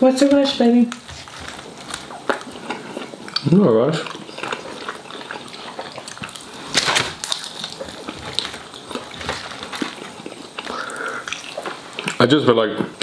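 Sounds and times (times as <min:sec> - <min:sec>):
man chewing chicken wing: 0:01.0 - 0:12.2
crunchy bite: 0:02.0 - 0:12.2.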